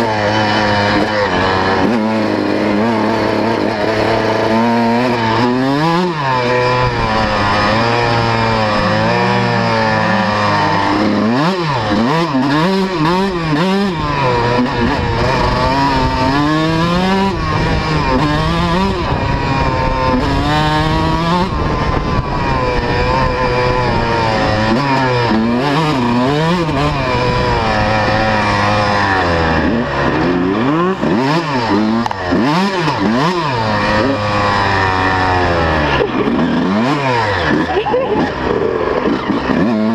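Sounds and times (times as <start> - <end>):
motocross bike revving: 0.0 - 39.9
second bike engine: 0.0 - 39.9.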